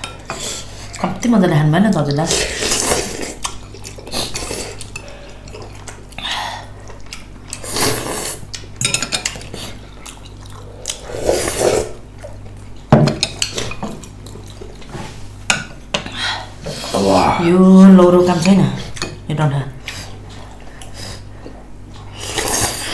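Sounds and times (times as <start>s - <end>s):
eating noises: 2.5s - 12.8s
utensils clinking on bowls: 8.8s - 9.5s.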